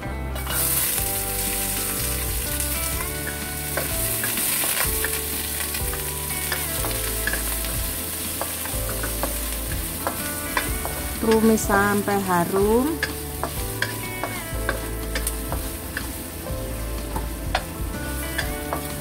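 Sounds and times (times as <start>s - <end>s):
food sizzling in hot oil: 0.4s - 19.0s
spatula scraping a wok: 13.0s - 19.0s.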